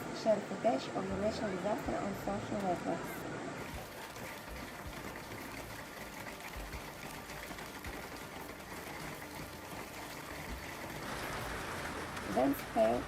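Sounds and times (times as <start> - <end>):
hail and heavy rain patter: 6.5 - 13.0.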